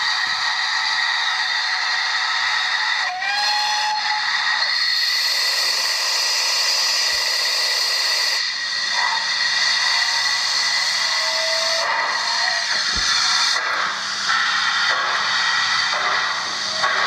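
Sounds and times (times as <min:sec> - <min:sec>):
steam locomotive whistle: 0:00.0 - 0:13.6
loud steam hiss: 0:00.0 - 0:17.0.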